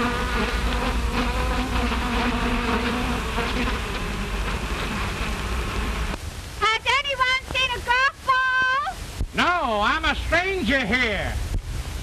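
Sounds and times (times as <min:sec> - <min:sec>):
bees buzzing: 0:00.0 - 0:06.2.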